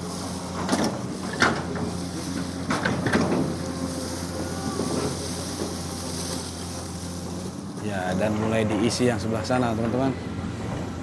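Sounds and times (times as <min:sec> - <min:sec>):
diesel engine running: 0:00.0 - 0:11.0
excavator bucket knocking and scraping: 0:00.1 - 0:06.5.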